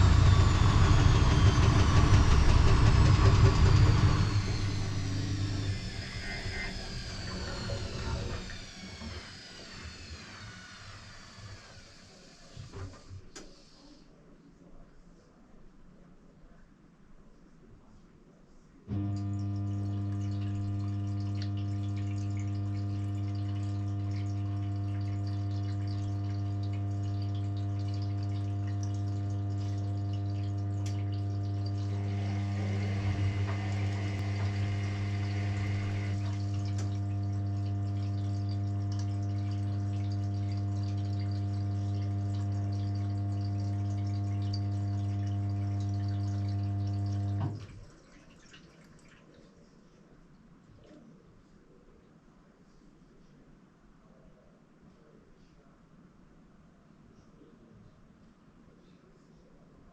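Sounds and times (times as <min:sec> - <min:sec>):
water rushing and slurping: 0:00.0 - 0:10.8, 0:20.2 - 0:49.5
pump humming: 0:00.0 - 0:13.6, 0:18.9 - 0:49.2.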